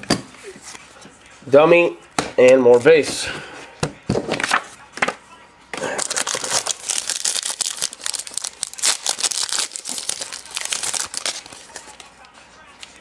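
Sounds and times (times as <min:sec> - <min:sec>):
trading cards flicking and rustling: 0:05.8 - 0:13.0.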